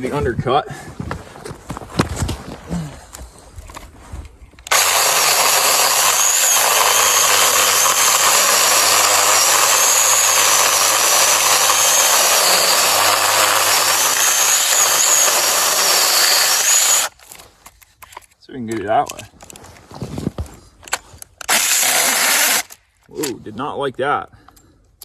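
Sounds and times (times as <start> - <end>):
cordless chainsaw sawing wood: 4.7 - 17.1, 21.5 - 22.8.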